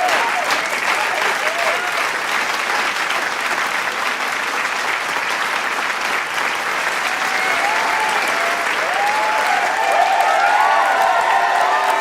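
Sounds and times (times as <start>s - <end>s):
crowd applauding: 0.0s - 12.0s
crowd cheering and whistling: 6.9s - 12.0s.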